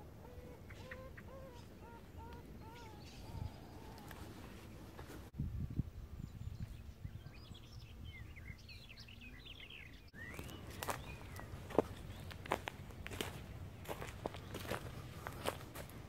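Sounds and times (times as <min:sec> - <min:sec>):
small birds chirping: 0:00.0 - 0:05.2, 0:05.8 - 0:16.0
low outdoor rumble: 0:00.0 - 0:16.0
footsteps on woodland path: 0:04.0 - 0:05.3, 0:10.2 - 0:16.0.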